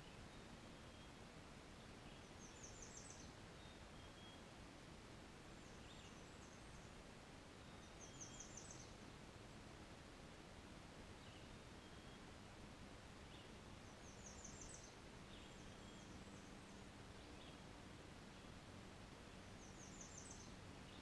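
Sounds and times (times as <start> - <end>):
background hiss: 0.0 - 21.0.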